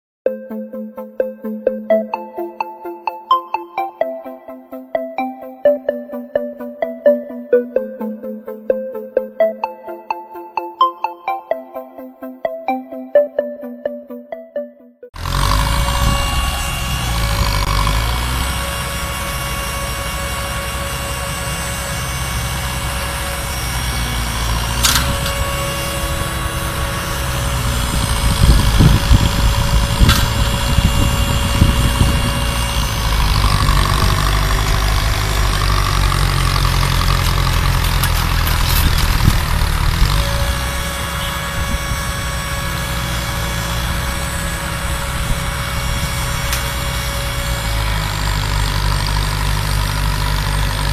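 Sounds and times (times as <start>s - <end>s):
engine running: 15.1s - 50.9s.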